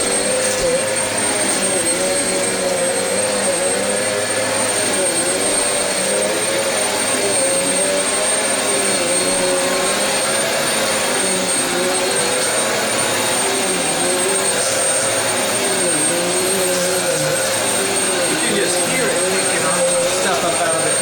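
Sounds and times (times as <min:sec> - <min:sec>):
vacuum cleaner motor hum: 0:00.0 - 0:21.0
thin high whine: 0:11.2 - 0:21.0.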